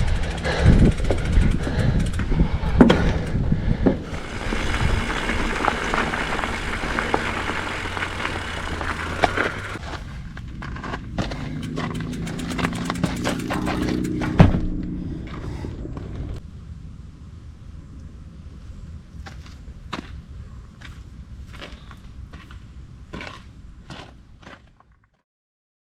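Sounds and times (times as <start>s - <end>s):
bike rattling over bumps: 0.0s - 16.4s
bike tyres rolling on dirt: 0.0s - 16.4s.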